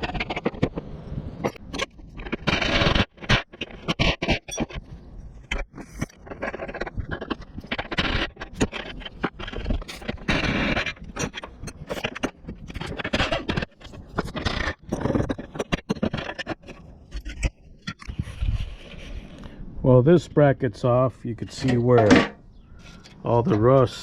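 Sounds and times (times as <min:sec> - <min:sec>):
metal scraping: 0:21.2 - 0:24.0.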